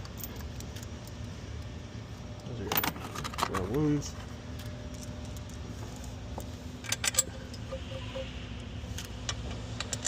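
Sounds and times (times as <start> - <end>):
low workshop hum: 0.0 - 10.0
metallic clinks of steel bolts: 6.8 - 8.3.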